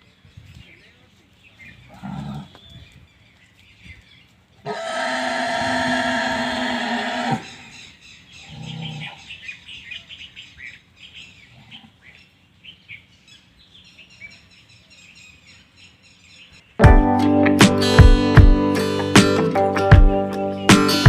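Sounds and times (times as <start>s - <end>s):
small birds chirping: 0.0s - 4.7s, 7.2s - 16.8s.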